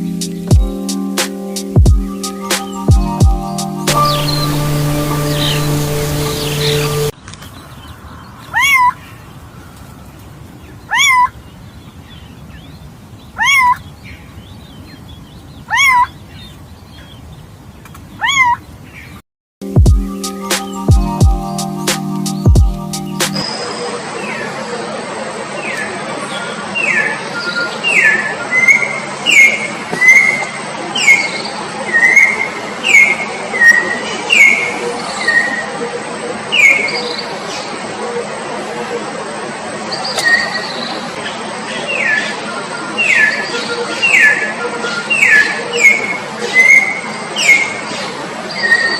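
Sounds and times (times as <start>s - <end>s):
peacock calling: 2.0s - 7.1s, 8.5s - 9.2s, 10.8s - 11.4s, 13.3s - 13.9s, 15.6s - 17.1s, 18.2s - 18.7s.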